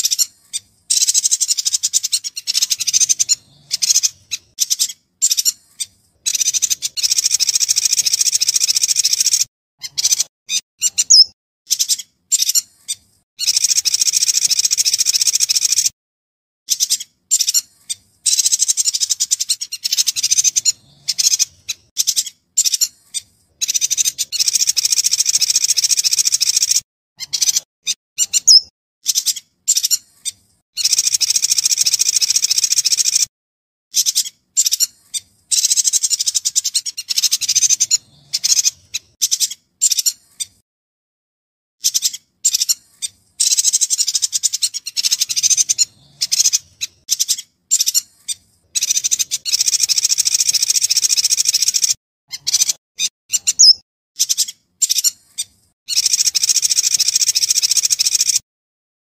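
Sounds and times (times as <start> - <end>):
bird singing chattering song: 0.0 - 15.9, 16.7 - 33.3, 33.9 - 40.6, 41.8 - 58.4
short bird chirps: 0.0 - 15.9, 16.7 - 33.3, 41.8 - 58.4.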